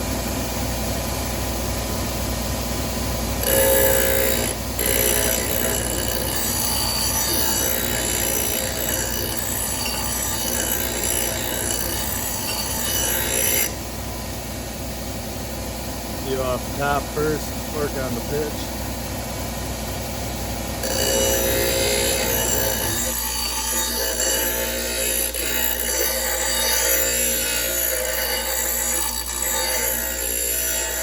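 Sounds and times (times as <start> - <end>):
motor hum: 0.0 - 31.0
metal grinding with high ringing: 3.4 - 13.8, 20.8 - 31.0.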